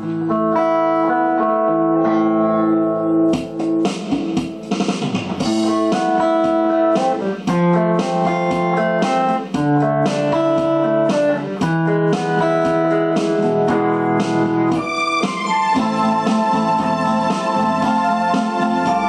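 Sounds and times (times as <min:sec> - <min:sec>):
strummed guitar chords: 0:00.0 - 0:19.0
held backing notes: 0:10.5 - 0:19.0.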